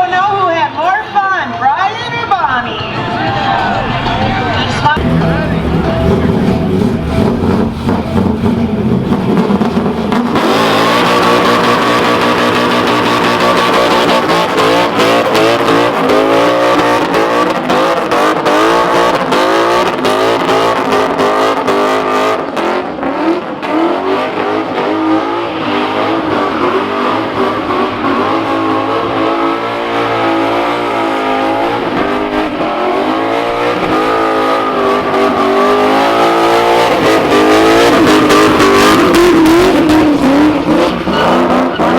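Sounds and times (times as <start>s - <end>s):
tires squealing: 0.0s - 41.9s
car engine revving hard: 3.8s - 41.9s.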